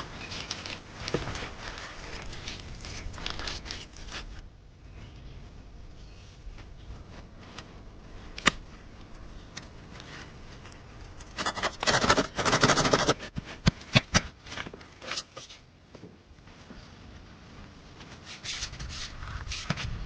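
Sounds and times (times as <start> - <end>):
scraping and rustling: 0.0 - 15.7, 16.5 - 20.0.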